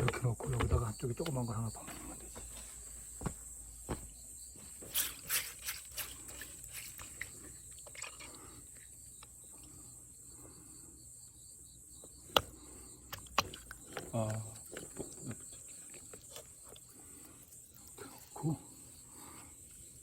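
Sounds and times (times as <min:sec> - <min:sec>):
stones knocking together: 0:00.0 - 0:01.4.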